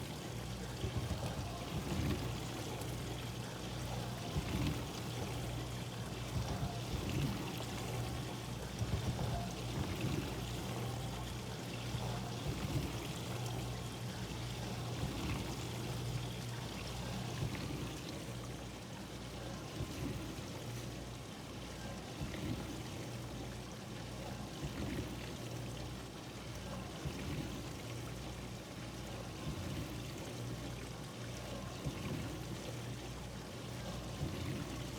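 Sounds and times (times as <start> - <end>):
water spraying and sloshing: 0.0 - 18.8.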